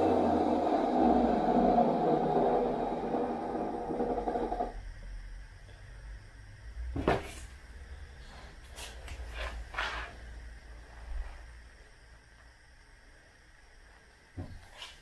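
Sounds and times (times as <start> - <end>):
wet vacuum cleaner motor running: 0.0 - 4.7.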